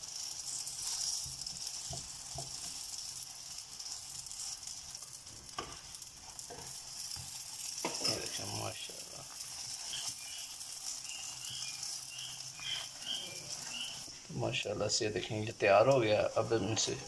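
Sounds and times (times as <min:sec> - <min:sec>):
flatbread sizzling in a pan: 0:00.0 - 0:17.0
spatula knocking pan: 0:00.8 - 0:03.0, 0:05.5 - 0:08.4.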